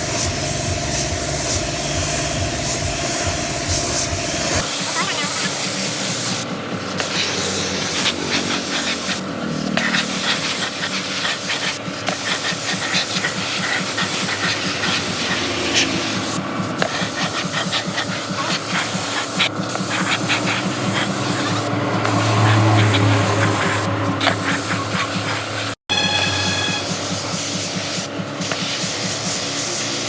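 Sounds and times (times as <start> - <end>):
paint spraying hiss: 0.0 - 30.0.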